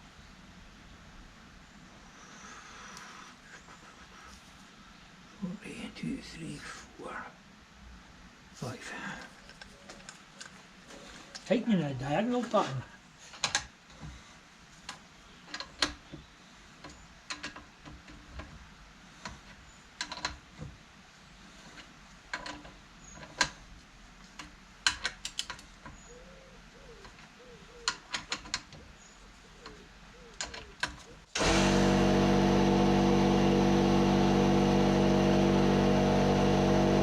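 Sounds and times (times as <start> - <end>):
ratchet clicks: 24.4 - 25.8.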